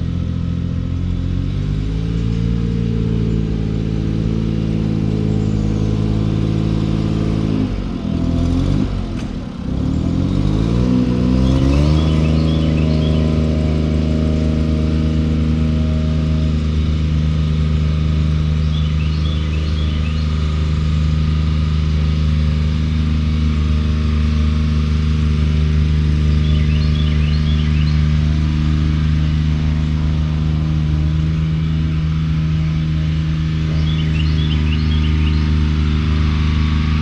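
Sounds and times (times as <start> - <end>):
engine droning: 0.0 - 37.0.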